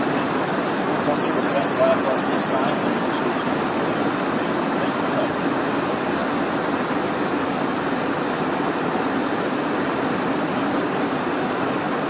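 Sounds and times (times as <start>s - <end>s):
jet engines humming: 0.2s - 4.6s.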